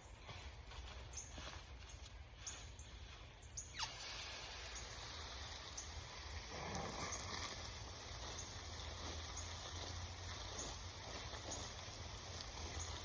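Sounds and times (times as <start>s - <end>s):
hose spraying water: 3.7s - 13.0s.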